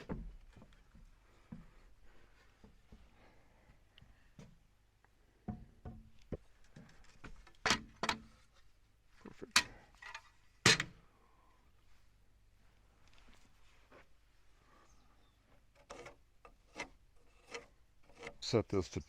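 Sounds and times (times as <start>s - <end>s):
irregular knocks and clunks: 0.0s - 1.8s, 5.4s - 8.3s.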